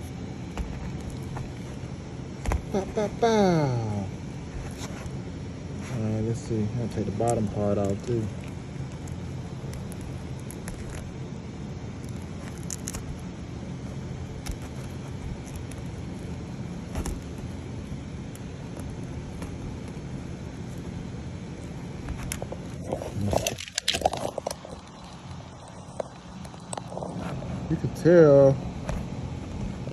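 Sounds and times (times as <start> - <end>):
steady low hum: 0.0 - 29.9
plastic snapping and crackling: 7.0 - 11.2, 11.9 - 20.9, 21.5 - 26.9.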